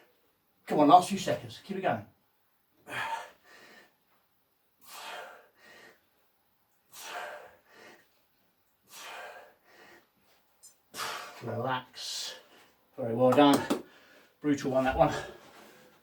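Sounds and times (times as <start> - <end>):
man breathing hard: 2.8 - 4.0, 4.8 - 6.2, 6.9 - 8.2, 8.8 - 11.4, 13.7 - 14.4.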